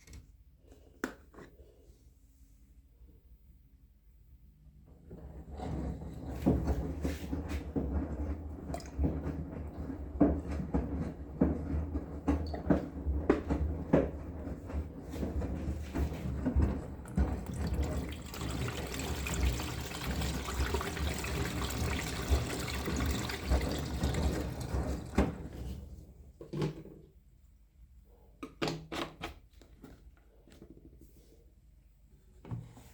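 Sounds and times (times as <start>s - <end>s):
water rushing into washing machine: 5.3s - 26.3s.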